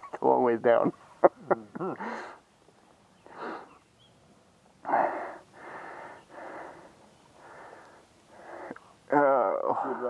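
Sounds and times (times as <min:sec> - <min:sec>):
heavy breathing: 0:02.0 - 0:02.4, 0:03.2 - 0:03.8, 0:04.8 - 0:09.0.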